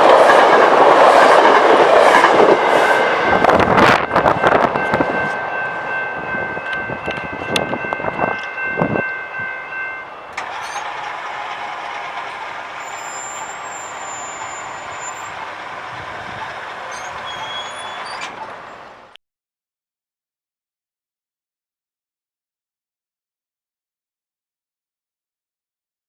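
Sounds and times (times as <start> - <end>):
train passing on rails: 0.0 - 19.2
faint high squeals: 12.8 - 15.4, 16.8 - 18.8.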